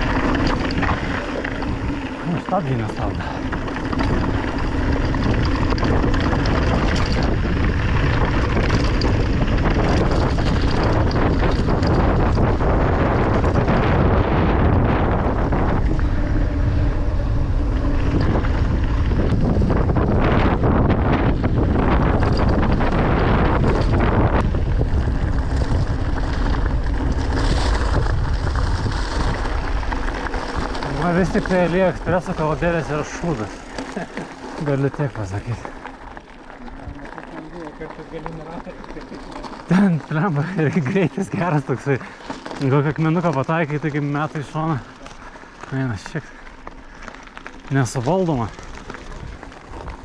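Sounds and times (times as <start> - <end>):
small clicks and rattles: 0.0 - 16.2, 17.8 - 50.0
tyres rolling over gravel: 0.0 - 50.0
wind buffeting microphone: 0.0 - 50.0.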